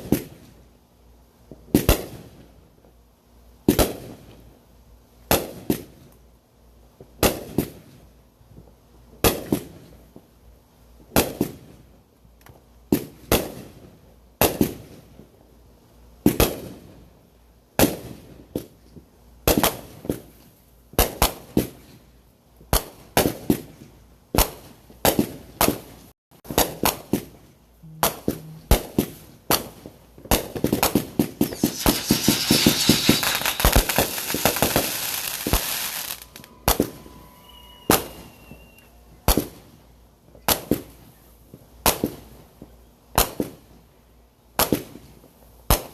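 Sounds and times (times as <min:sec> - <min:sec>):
fireworks banging and crackling: 0:28.0 - 0:39.7.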